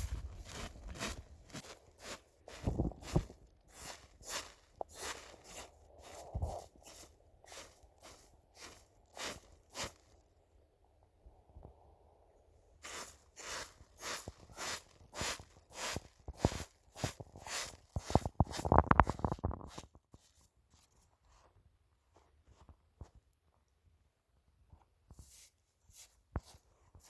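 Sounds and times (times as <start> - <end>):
crunching and scuffing: 0.0 - 10.2, 12.8 - 23.2
crunching footsteps: 0.0 - 10.2, 12.8 - 19.9.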